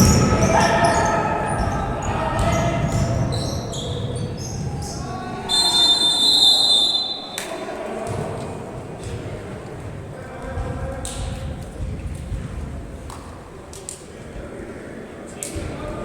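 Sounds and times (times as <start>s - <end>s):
basketball bouncing: 0.0s - 5.0s
voices: 0.0s - 16.0s.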